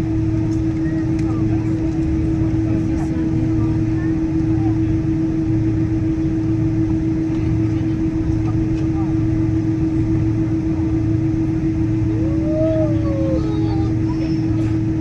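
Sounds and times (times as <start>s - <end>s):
aircraft cabin drone: 0.1s - 15.0s
faint passenger voices: 0.2s - 15.0s
low hum tone: 11.8s - 14.7s.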